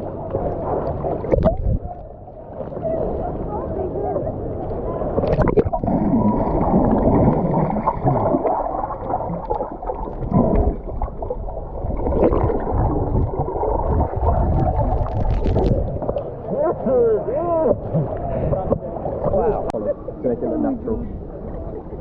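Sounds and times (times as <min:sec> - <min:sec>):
underwater gurgling and bubbling: 0:00.0 - 0:16.9.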